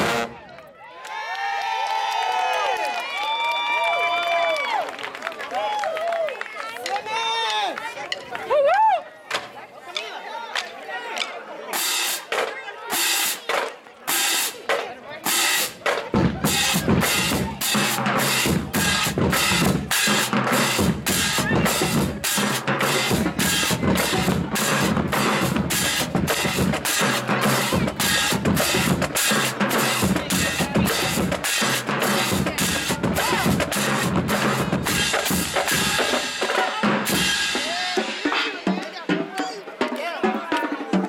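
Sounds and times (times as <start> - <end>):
snare drums: 0.0 - 0.3, 9.3 - 41.0
cymbals: 15.3 - 38.7
bass drums: 15.8 - 38.6.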